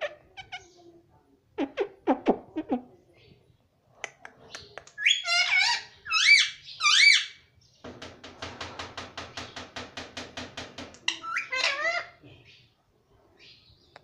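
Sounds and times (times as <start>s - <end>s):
parrot squeaky chatter: 4.6s - 7.4s, 11.0s - 12.2s
parrot squawking: 5.0s - 7.4s, 11.1s - 12.2s.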